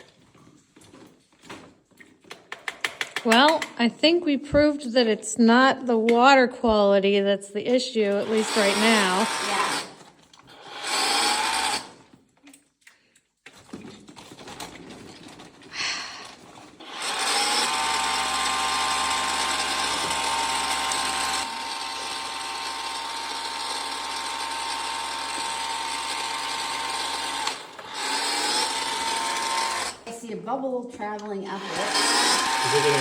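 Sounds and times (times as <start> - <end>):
pressure washer motor whine: 8.1 - 9.9, 16.8 - 30.0, 31.6 - 33.0.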